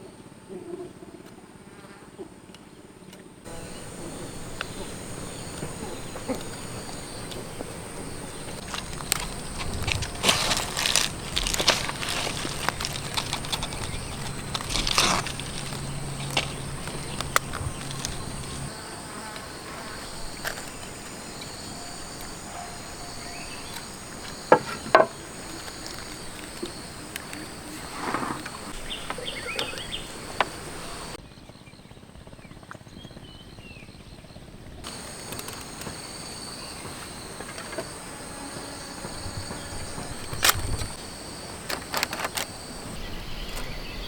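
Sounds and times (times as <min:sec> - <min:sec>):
insects buzzing: 0:03.4 - 0:31.2, 0:34.8 - 0:44.0
handling noises: 0:03.5 - 0:31.2, 0:34.9 - 0:43.8
sharp knocks: 0:21.8 - 0:25.4.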